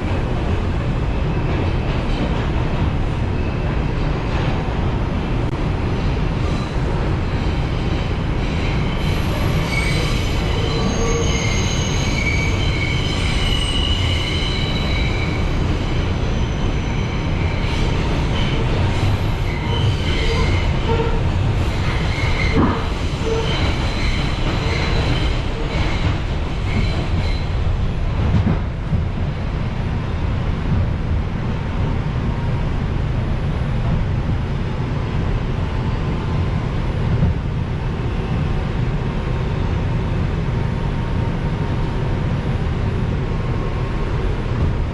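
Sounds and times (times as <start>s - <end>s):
subway car rumbling: 0.0s - 44.9s
wheels squealing on rails: 6.5s - 27.7s.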